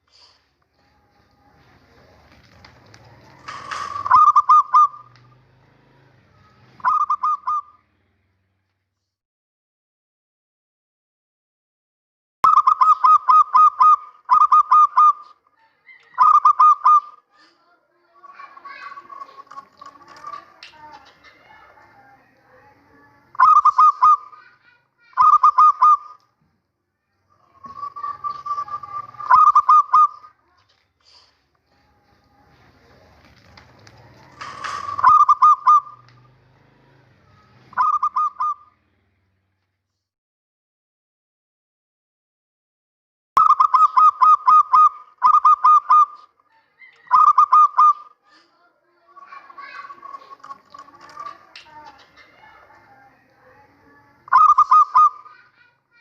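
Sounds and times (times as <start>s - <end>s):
dove cooing in staccato notes: 1.5s - 5.9s, 6.8s - 7.8s, 12.5s - 17.3s, 18.2s - 22.0s, 23.3s - 26.2s, 27.4s - 30.3s, 33.8s - 36.9s, 37.7s - 38.7s, 43.4s - 48.2s, 49.1s - 52.9s, 54.2s - 55.8s.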